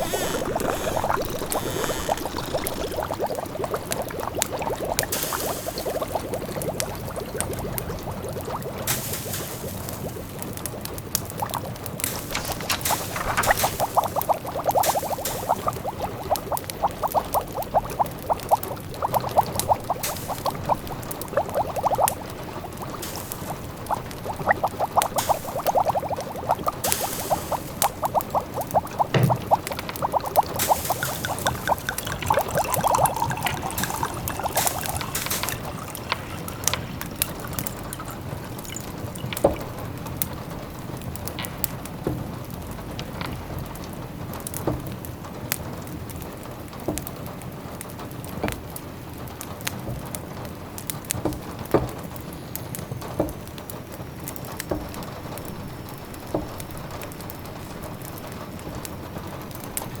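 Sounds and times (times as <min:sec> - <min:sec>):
steady rain: 0:00.0 - 0:03.2, 0:11.9 - 0:14.2
liquid bubbling and pouring: 0:00.0 - 0:40.8.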